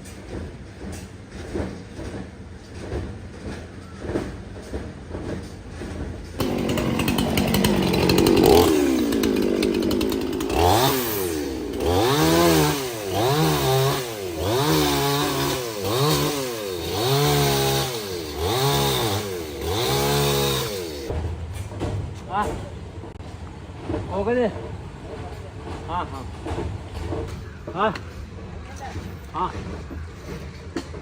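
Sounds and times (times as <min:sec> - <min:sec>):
chainsaw engine revving: 0:06.4 - 0:21.1.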